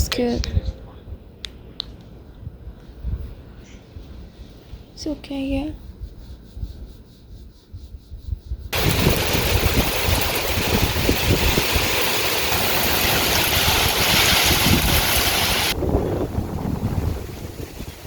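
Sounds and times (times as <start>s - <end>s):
wind buffeting the microphone: 2.2s - 7.0s, 7.6s - 18.0s
heavy rain hissing: 8.7s - 18.0s.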